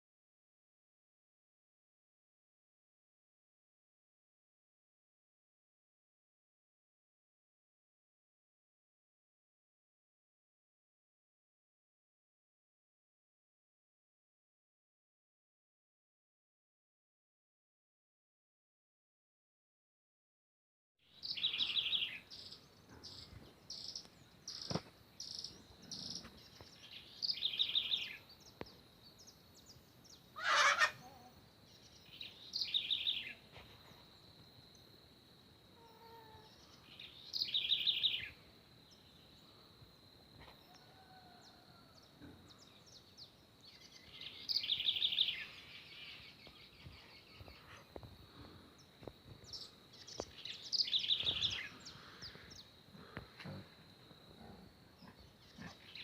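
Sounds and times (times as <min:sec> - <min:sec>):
birds calling in trills: 0:29.2 - 0:31.3.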